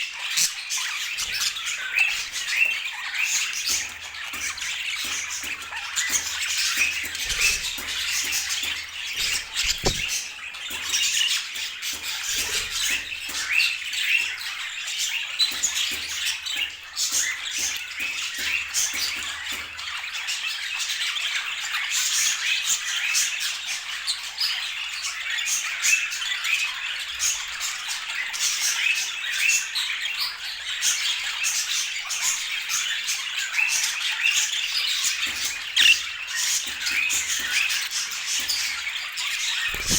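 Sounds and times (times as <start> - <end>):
budgerigars chattering: 9.2 - 10.1, 39.7 - 39.9.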